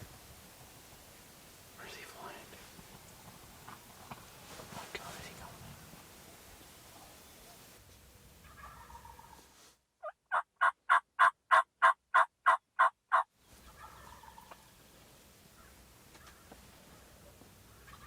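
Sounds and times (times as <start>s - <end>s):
turkey yelps: 8.4s - 9.4s, 10.0s - 14.7s
distant turkey gobbling: 8.4s - 14.8s, 15.5s - 18.0s.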